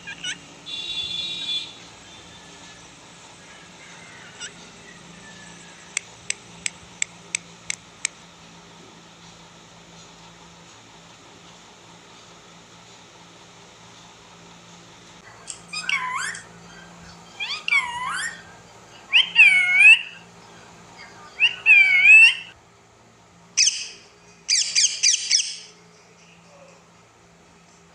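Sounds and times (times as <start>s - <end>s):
parrot calling: 0.0s - 1.8s, 3.5s - 5.8s, 15.6s - 22.6s, 23.6s - 25.8s.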